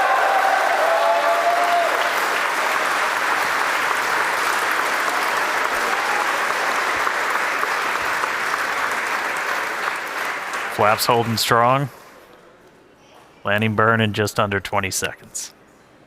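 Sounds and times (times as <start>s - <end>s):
crowd applauding and cheering: 0.0s - 11.8s.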